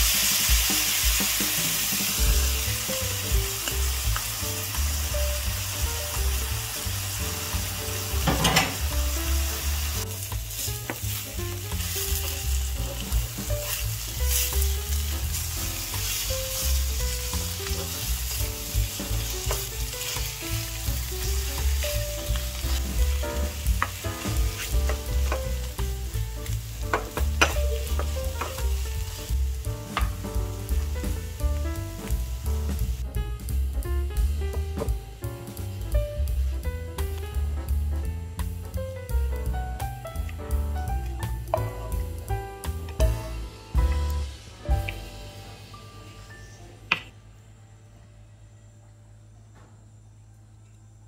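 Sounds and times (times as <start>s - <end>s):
food sizzling in a frying pan: 0.0s - 37.8s, 39.3s - 46.5s
spatula scraping and tapping pan: 26.9s - 28.7s.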